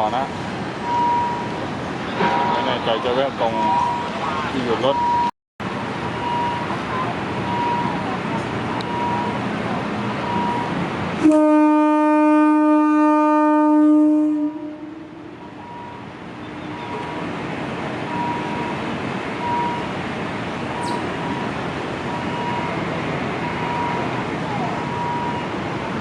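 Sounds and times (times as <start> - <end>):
train air horn blast: 11.2 - 15.2
train engine running: 14.8 - 26.0.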